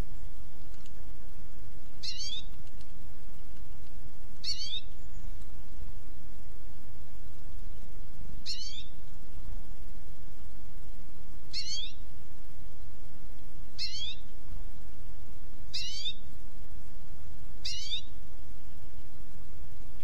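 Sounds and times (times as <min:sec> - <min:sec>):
low background noise: 0:00.0 - 0:20.0
bird calling with sweeping pitch: 0:02.0 - 0:02.5, 0:04.4 - 0:05.0, 0:08.4 - 0:08.9, 0:11.5 - 0:12.0, 0:13.8 - 0:14.3, 0:15.7 - 0:16.2, 0:17.6 - 0:18.1.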